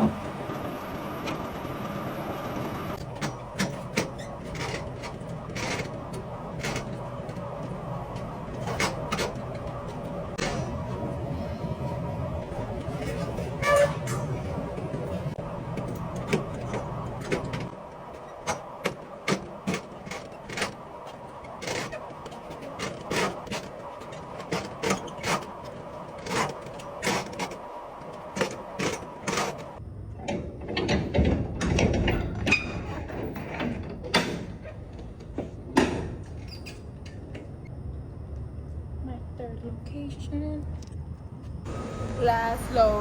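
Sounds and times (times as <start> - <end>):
low running rumble: 0.0 - 19.6.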